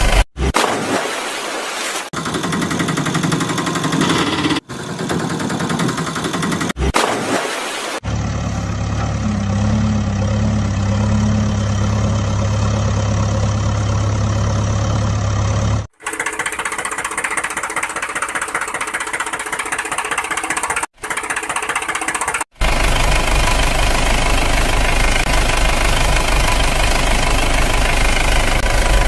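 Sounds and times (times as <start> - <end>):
engine knocking clatter: 2.2 - 6.8, 10.8 - 29.0
diesel engine idling: 8.0 - 29.0.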